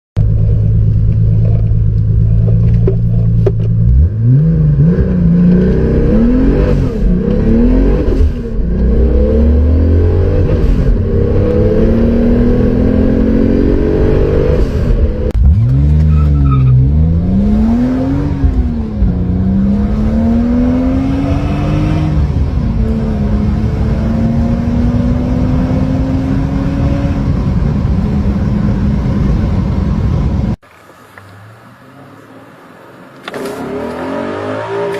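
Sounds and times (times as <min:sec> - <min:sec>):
car engine accelerating hard: 0:00.2 - 0:30.6.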